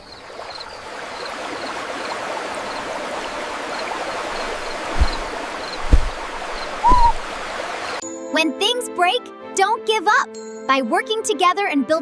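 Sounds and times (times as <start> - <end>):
rushing water: 0.0 - 8.0
short low thump: 4.3 - 7.4
faint high chirps: 6.5 - 7.3.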